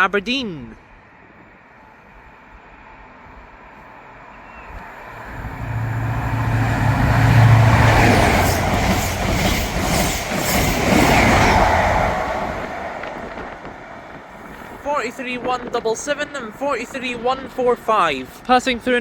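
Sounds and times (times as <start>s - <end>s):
train engine drone: 1.0s - 14.8s
train wheels clattering on rails: 6.2s - 14.8s.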